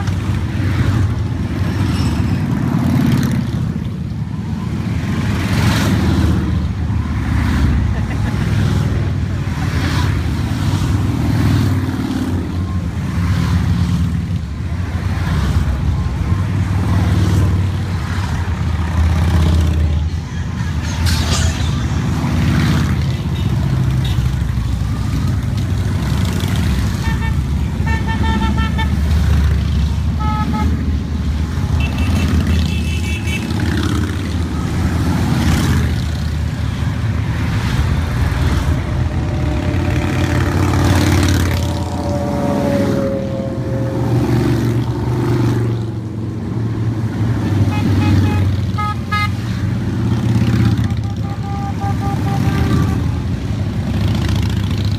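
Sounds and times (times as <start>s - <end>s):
motorcycles rumbling past: 33.4s - 48.7s.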